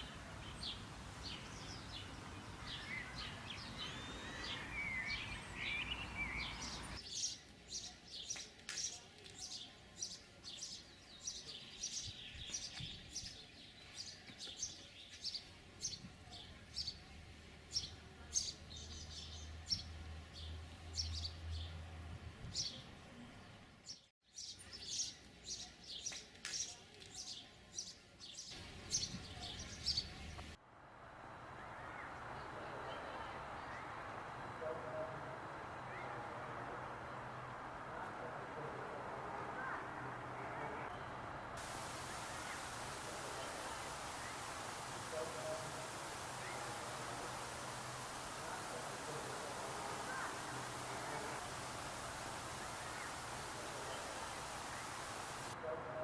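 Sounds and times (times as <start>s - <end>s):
songbirds chirping and singing: 0.0s - 17.1s, 38.2s - 55.6s.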